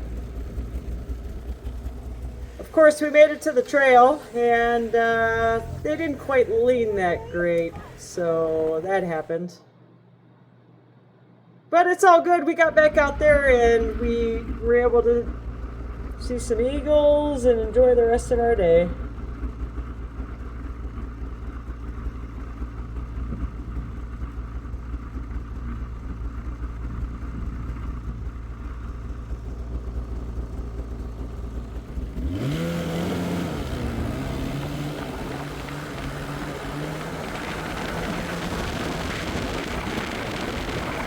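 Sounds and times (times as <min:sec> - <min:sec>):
snowmobile engine revving: 0:00.0 - 0:09.4, 0:12.5 - 0:24.2, 0:25.6 - 0:41.0.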